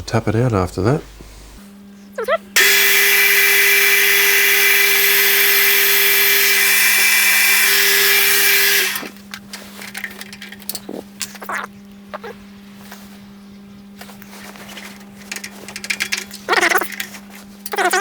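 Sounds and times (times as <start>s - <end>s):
milling machine drill whirring: 2.6s - 9.1s.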